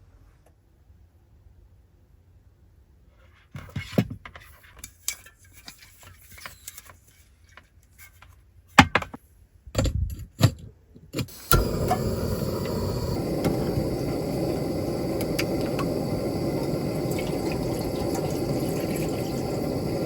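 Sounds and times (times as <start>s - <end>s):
steady rumbling noise: 11.3s - 20.0s.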